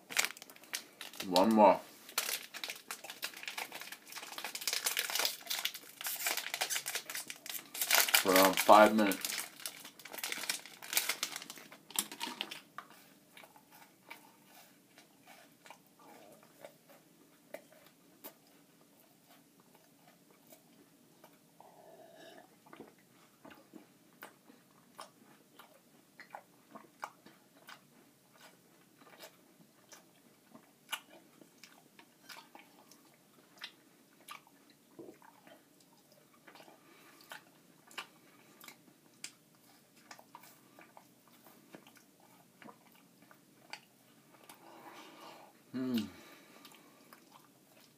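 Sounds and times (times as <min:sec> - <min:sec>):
granola bar crunching: 0:00.0 - 0:12.7
wrapper crinkling: 0:00.0 - 0:12.7.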